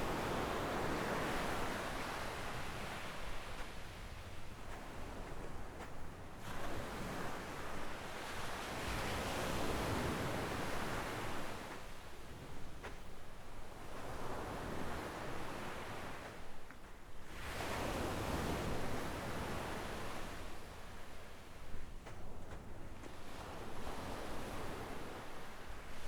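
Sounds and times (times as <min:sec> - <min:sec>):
waves washing up a sandy shore: 0:00.0 - 0:12.6.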